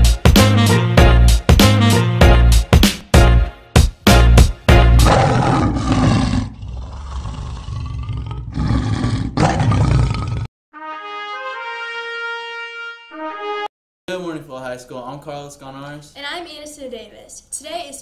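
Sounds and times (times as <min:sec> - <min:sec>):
brass fanfare: 0:00.0 - 0:05.1, 0:10.7 - 0:13.7
intro music with hard beats: 0:00.0 - 0:05.1
lion roar: 0:05.0 - 0:10.5.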